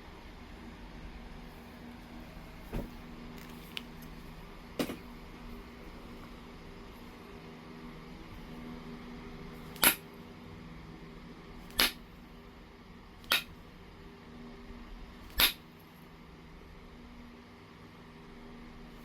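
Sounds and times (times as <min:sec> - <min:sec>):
stone being struck clicks: 0:13.2 - 0:13.5.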